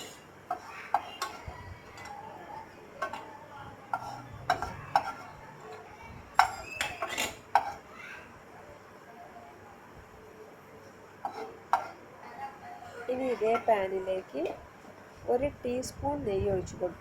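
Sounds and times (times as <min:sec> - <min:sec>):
metal spoon scraping a pan: 0:00.0 - 0:07.9, 0:11.2 - 0:13.9.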